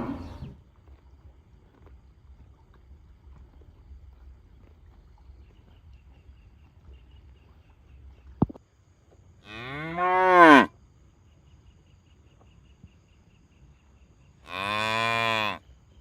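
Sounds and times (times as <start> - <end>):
cattle mooing: 0.0 - 0.5.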